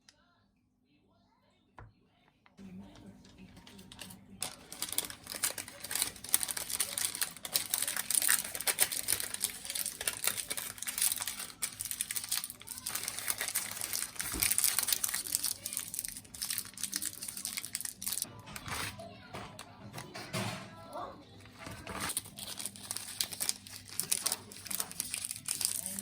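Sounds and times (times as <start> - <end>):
crinkling and rustling: 3.0 - 26.0.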